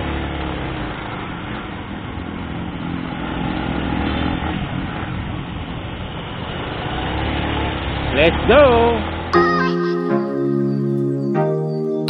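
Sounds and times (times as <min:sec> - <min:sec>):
motorcycle engine running: 0:00.0 - 0:09.3
wind and road noise: 0:00.0 - 0:09.3.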